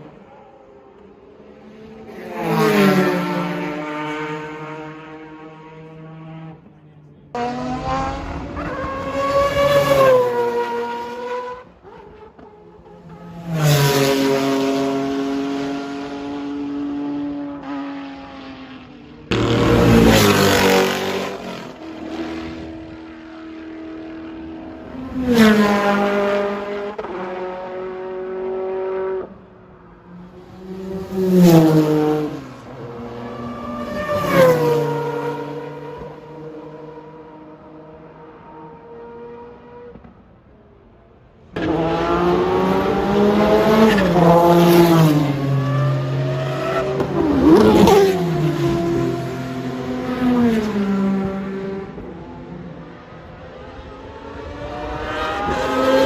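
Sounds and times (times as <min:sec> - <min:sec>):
racing engine revving: 0:07.3 - 0:12.2, 0:13.8 - 0:29.3, 0:41.6 - 0:52.2.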